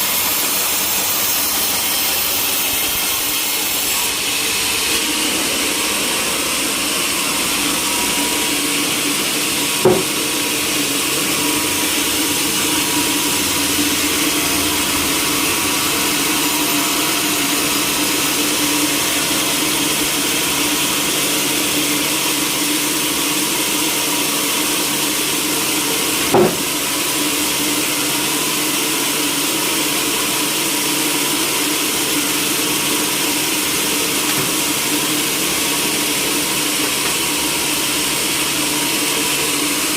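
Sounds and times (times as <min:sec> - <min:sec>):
sawmill machinery humming: 0:00.0 - 0:39.9
sharp knock: 0:09.8 - 0:10.2, 0:26.3 - 0:26.7.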